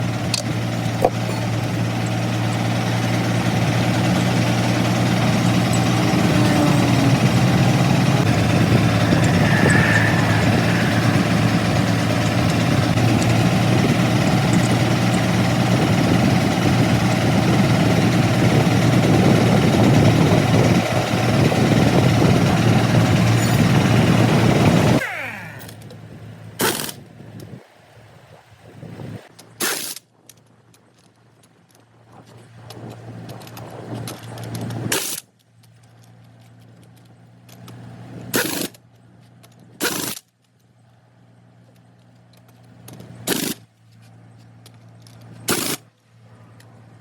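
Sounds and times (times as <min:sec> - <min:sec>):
heavy machinery droning: 0:00.0 - 0:26.6.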